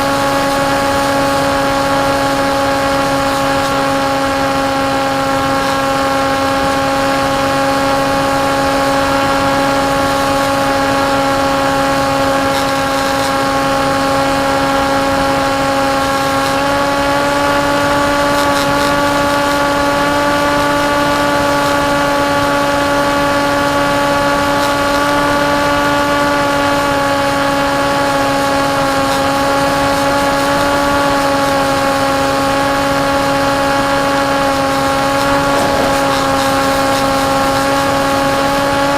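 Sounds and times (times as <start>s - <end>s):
electric motor buzzing whine: 0.0s - 38.9s
wind rush: 35.1s - 38.0s.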